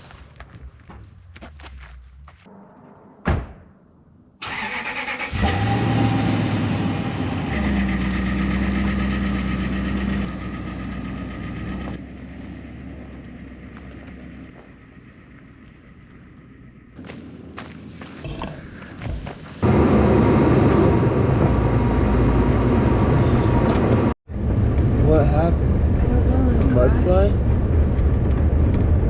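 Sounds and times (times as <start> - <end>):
thud: 2.9 - 3.8
truck engine starting and idling: 4.4 - 18.1, 19.6 - 29.0.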